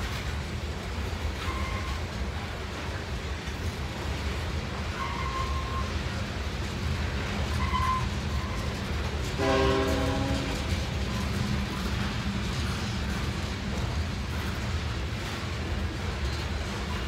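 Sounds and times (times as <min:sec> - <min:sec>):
train wheels rumbling on rail: 0:00.0 - 0:17.0
wheel squeals: 0:01.4 - 0:02.1, 0:04.9 - 0:06.2, 0:07.4 - 0:08.9
locomotive air horn: 0:09.4 - 0:10.7.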